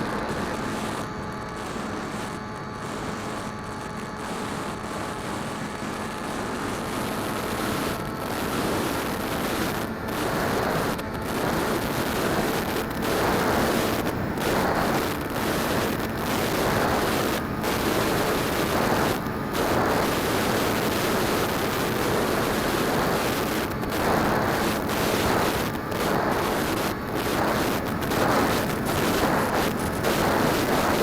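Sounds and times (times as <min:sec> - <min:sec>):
wind over microphone: 0:00.0 - 0:31.0
drone propellers spinning: 0:23.8 - 0:31.0.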